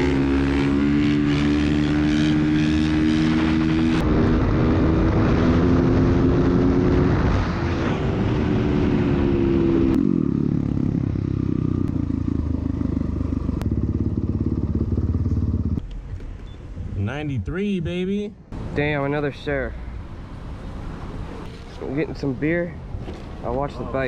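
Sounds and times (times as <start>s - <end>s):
dirt bike engine running: 10.0s - 15.8s.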